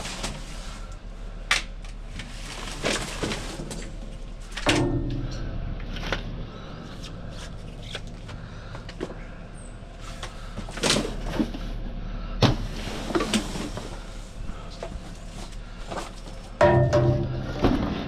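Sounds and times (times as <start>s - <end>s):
scrap metal clanking: 4.6s - 6.1s, 16.6s - 18.0s.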